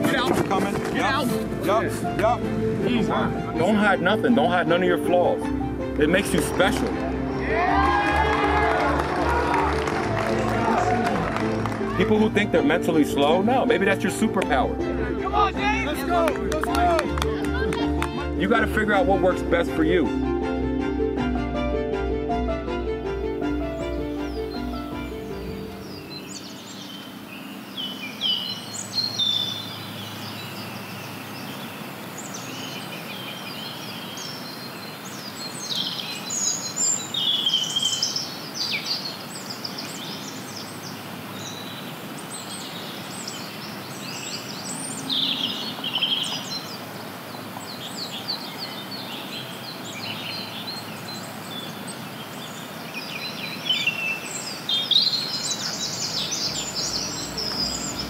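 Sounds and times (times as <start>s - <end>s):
songbirds chirping and singing: 23.6s - 58.0s
steady background hiss: 24.2s - 58.0s.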